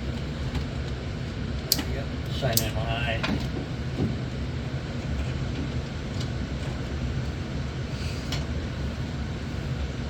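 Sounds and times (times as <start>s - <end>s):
low machinery hum: 0.0s - 10.0s.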